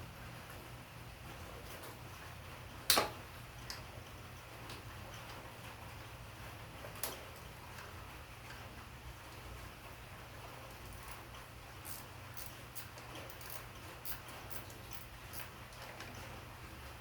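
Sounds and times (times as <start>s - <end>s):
wrench clinking on bolts: 11.8s - 15.5s.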